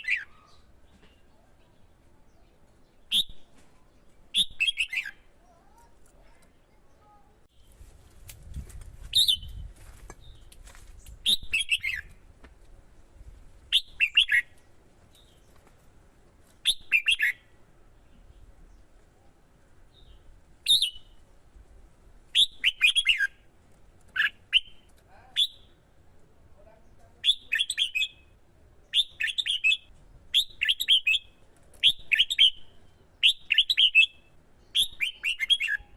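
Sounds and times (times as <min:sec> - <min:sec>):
bird song with falling chirps: 0:00.0 - 0:05.3, 0:13.7 - 0:15.8, 0:16.6 - 0:21.4, 0:27.2 - 0:35.9.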